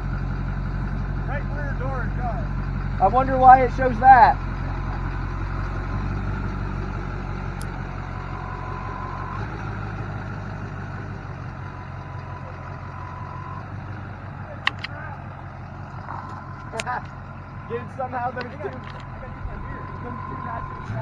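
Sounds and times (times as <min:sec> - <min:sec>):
diesel truck engine running: 0:00.0 - 0:21.0
steady beep tone: 0:19.3 - 0:21.0.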